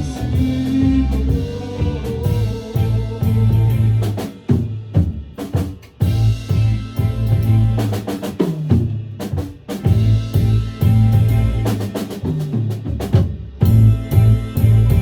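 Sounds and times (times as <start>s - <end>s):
low bass notes: 0.0s - 4.2s, 6.0s - 8.1s, 9.9s - 12.0s, 13.6s - 15.0s
band rehearsing: 0.0s - 15.0s
drum kit playing: 0.0s - 15.0s.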